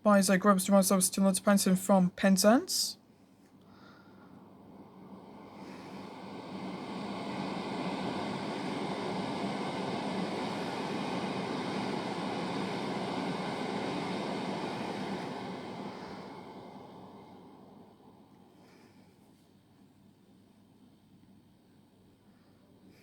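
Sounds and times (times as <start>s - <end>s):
train passing: 3.8s - 19.0s.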